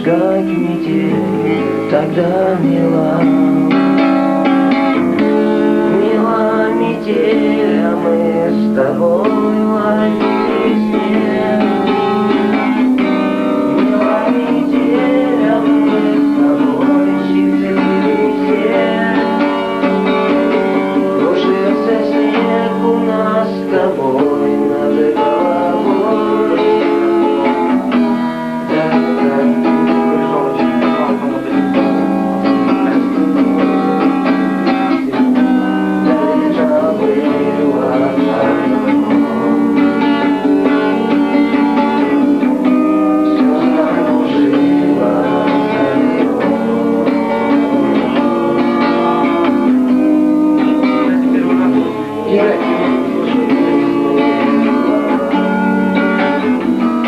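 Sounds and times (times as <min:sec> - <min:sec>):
plucked guitar notes: 0:00.0 - 0:57.0
sustained accompaniment: 0:00.0 - 0:57.0.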